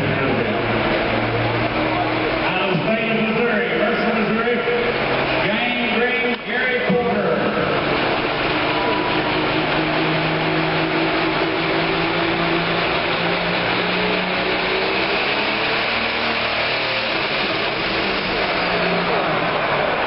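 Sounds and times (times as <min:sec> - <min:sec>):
diesel engine running hard: 0:00.0 - 0:20.0.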